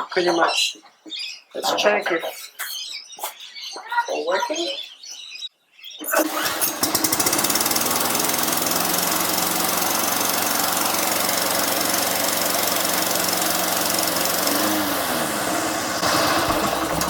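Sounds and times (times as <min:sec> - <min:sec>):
lawn mower engine running: 0:06.1 - 0:17.0.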